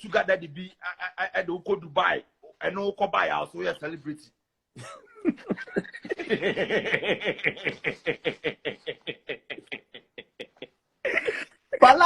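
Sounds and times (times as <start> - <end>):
person laughing hard: 4.8 - 11.8.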